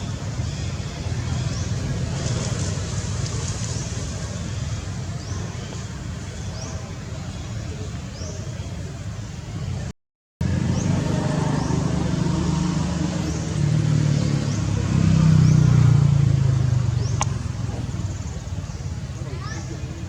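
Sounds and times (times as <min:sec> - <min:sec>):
vehicle engine passing by: 0:00.9 - 0:04.5, 0:10.4 - 0:19.8.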